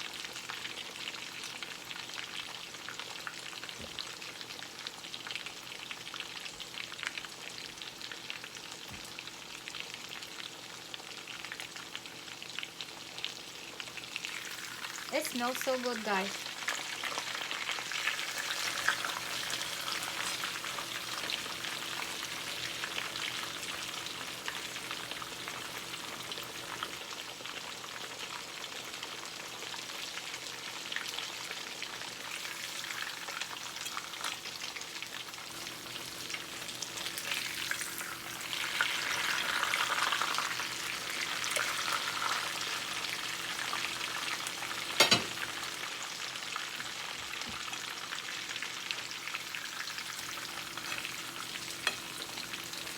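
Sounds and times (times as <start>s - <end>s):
chicken deep-frying in oil: 0.0s - 52.9s.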